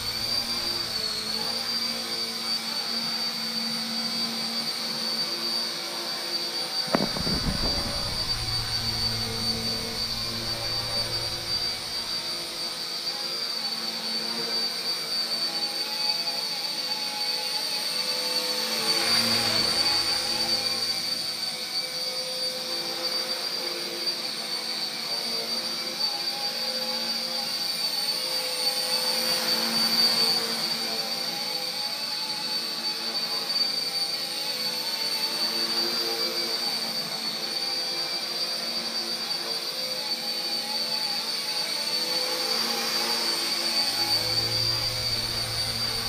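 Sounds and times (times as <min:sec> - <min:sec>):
rotor buzz: 0:00.0 - 0:01.7, 0:06.9 - 0:12.6, 0:42.8 - 0:46.0
rc helicopter motor whine: 0:00.0 - 0:46.0.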